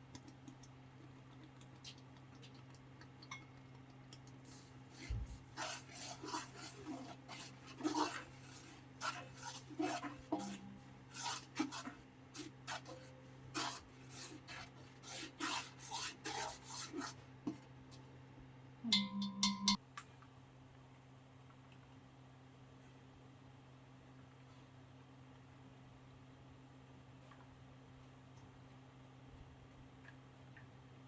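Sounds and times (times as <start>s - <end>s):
scraping and rubbing strokes: 4.4s - 17.6s.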